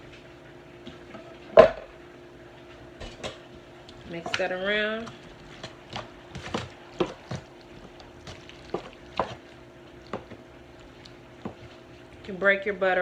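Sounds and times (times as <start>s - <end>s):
faint steady hum: 0.0s - 13.0s
utensil scraping and tapping pan: 4.0s - 9.4s, 10.1s - 11.8s.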